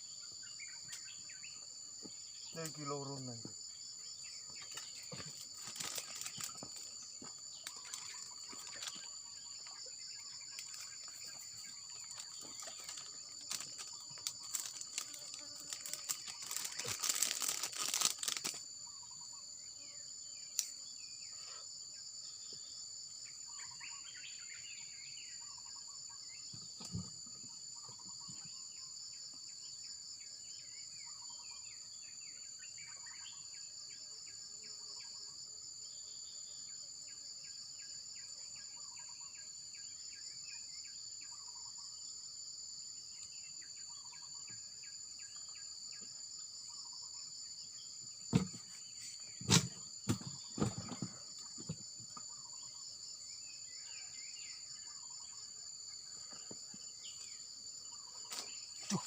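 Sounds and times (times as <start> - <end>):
insects chirping drone: 0.0 - 59.0
faint scattered chirps: 4.4 - 19.3
close crackling rustle: 4.8 - 6.9, 12.0 - 18.6
soft thump: 48.3 - 48.8.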